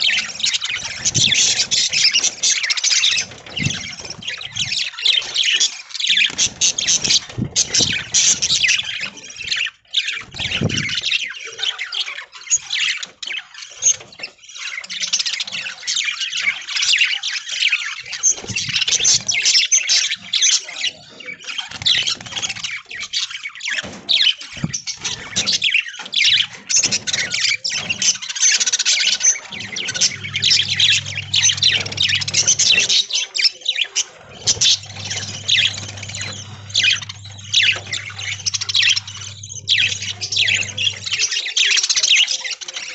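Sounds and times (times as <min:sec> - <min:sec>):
budgerigars chattering and squawking: 0:00.0 - 0:42.9
steady low hum: 0:29.5 - 0:33.0, 0:34.2 - 0:41.4.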